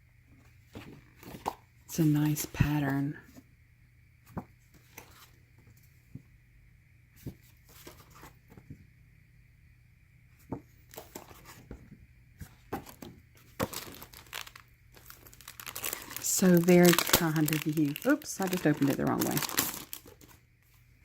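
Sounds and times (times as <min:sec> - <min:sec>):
paper cards tapping and rustling: 0:10.4 - 0:20.4.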